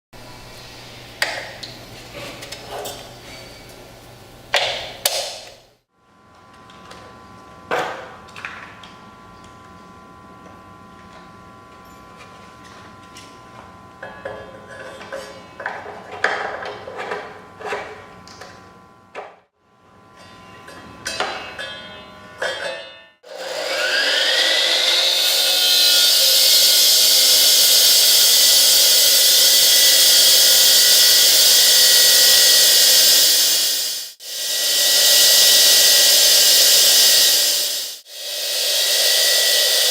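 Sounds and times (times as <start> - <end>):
concrete saw motor whine: 23.2 - 39.9.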